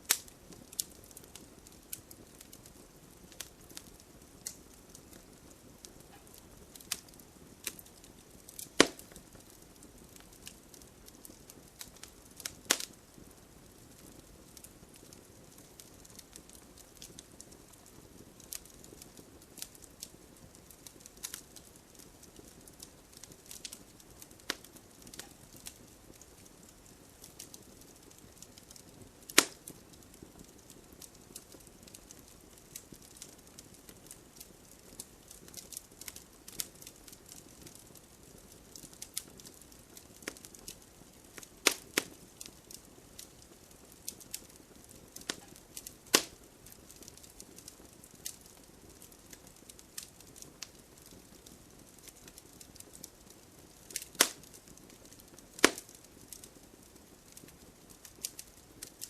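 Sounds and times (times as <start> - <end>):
campfire crackling: 0.0 - 59.0.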